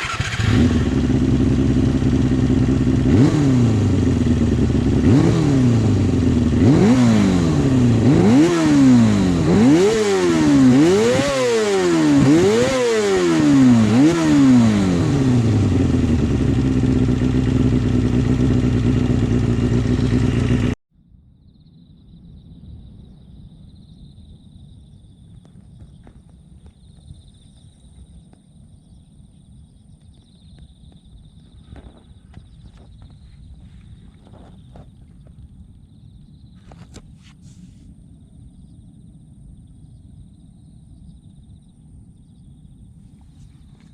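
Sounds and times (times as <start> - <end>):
motorcycle engine idling and revving: 0.0 - 20.8, 25.3 - 37.7, 43.1 - 43.9.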